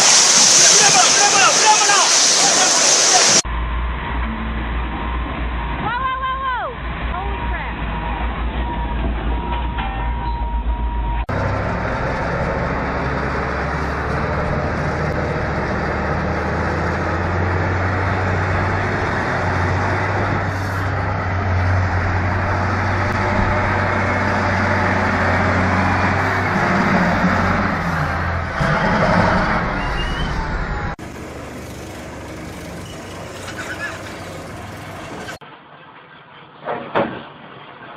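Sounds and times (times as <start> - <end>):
large vehicle engine running: 10.6 - 35.9.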